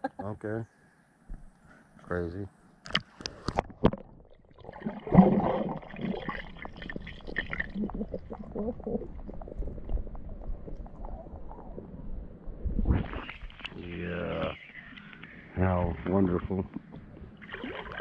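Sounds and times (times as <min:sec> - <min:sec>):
underwater gurgling and bubbling: 0:03.6 - 0:13.8, 0:16.3 - 0:18.0
water sloshing: 0:16.7 - 0:18.0.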